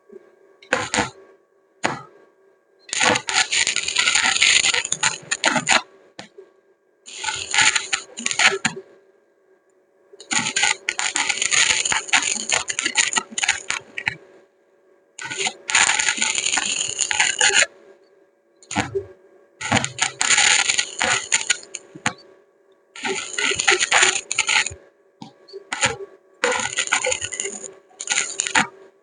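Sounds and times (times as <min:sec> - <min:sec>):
welding arc crackling: 0:02.9 - 0:05.8, 0:07.1 - 0:08.7, 0:10.2 - 0:14.1, 0:15.2 - 0:17.7, 0:18.7 - 0:19.0, 0:19.6 - 0:22.2, 0:23.0 - 0:28.8.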